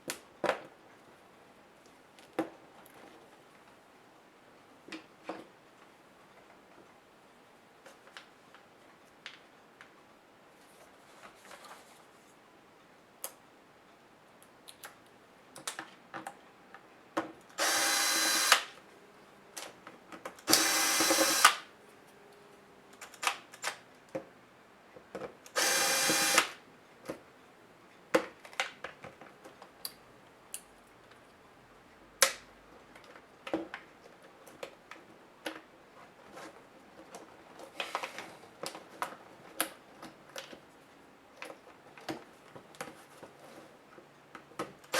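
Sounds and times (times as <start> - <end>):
electric screwdriver whirring: 17.6 - 18.7, 20.5 - 21.6, 25.6 - 26.6.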